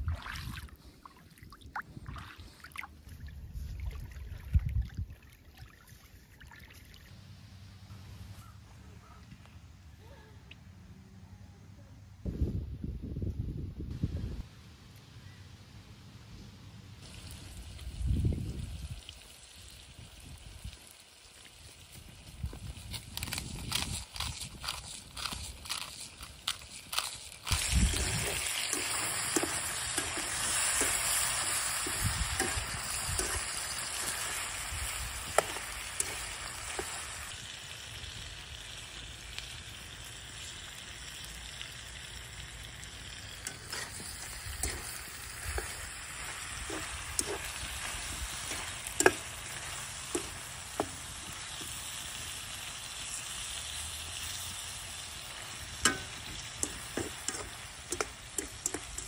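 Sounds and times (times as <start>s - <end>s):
meat and onion sizzling in a wok: 17.0s - 59.0s
metal spatula scraping a pan: 27.9s - 34.6s, 43.4s - 45.9s.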